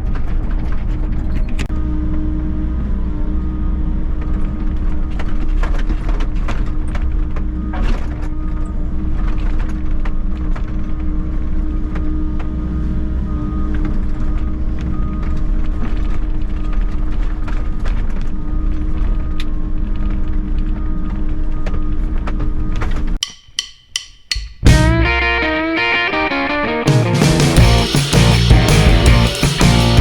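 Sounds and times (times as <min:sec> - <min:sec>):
sharp clicks and knocks: 0:23.2 - 0:24.8
excavator diesel engine running: 0:27.1 - 0:30.0.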